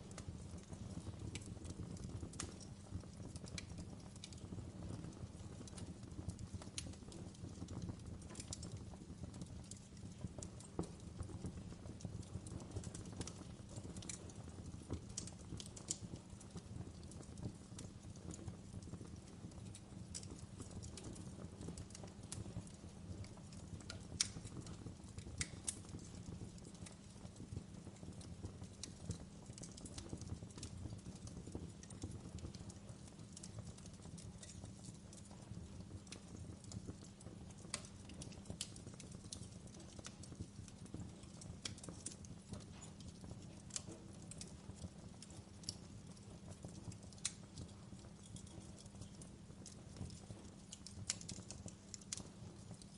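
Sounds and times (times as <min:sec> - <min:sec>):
fire crackles and pops: 0:00.0 - 0:52.9
fire low rumble: 0:00.0 - 0:52.9.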